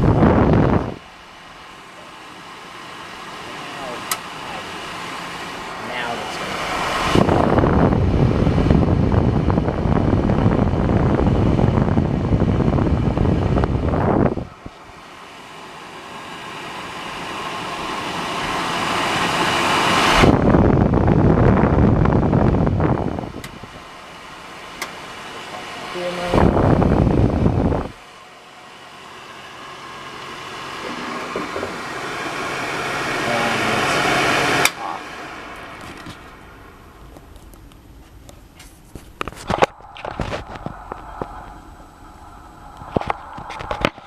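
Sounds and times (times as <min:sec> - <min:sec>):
hair dryer running: 0:00.0 - 0:37.0
faint motor hum: 0:00.0 - 0:44.0.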